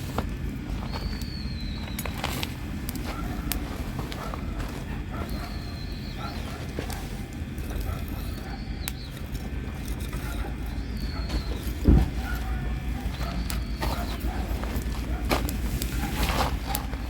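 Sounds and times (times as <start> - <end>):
fire pops: 0.0 - 10.2, 10.8 - 17.0
campfire burning: 0.0 - 17.0
heavy thump: 11.8 - 12.3.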